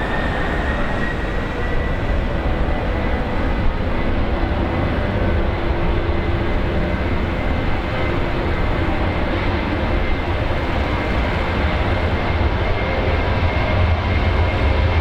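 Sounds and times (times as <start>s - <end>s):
high whining tones: 0.0s - 3.8s
jet engines running: 0.0s - 15.0s.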